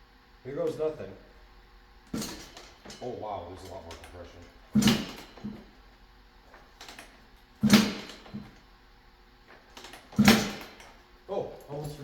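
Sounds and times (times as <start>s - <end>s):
motorcycle kick start thump and whoosh: 4.8s - 5.6s, 7.6s - 8.4s, 10.1s - 10.8s.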